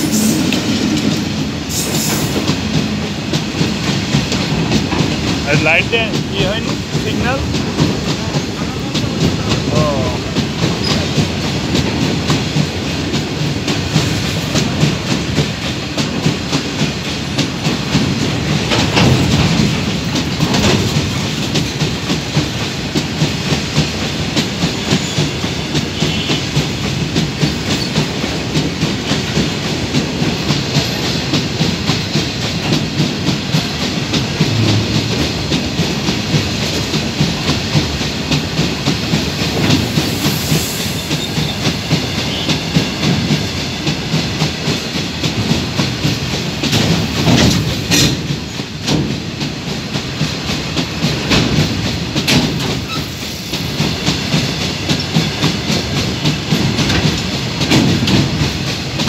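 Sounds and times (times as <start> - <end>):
heavy knocks: 33.6 - 36.8.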